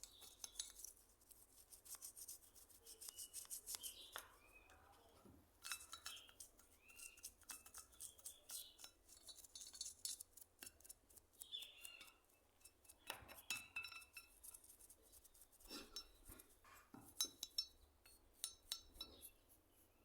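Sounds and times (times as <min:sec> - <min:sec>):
metal parts clinking and tapping: 0:05.6 - 0:06.4.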